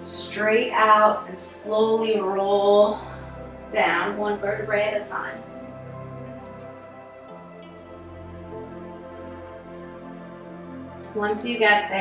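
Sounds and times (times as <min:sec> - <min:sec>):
soft new-age music with pads: 0:00.0 - 0:12.0.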